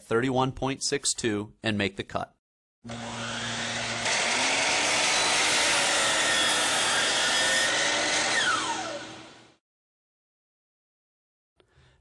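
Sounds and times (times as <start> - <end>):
miter saw cutting wood: 2.9 - 9.6.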